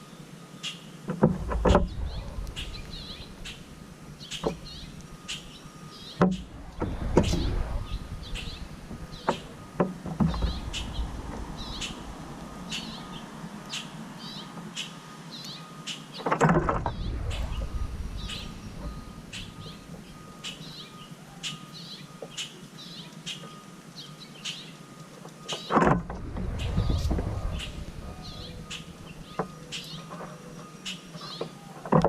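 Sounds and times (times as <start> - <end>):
small birds chirping: 0.6 - 24.8, 25.4 - 31.9
brief rush of noise: 1.6 - 13.8, 16.6 - 20.8, 26.0 - 30.0.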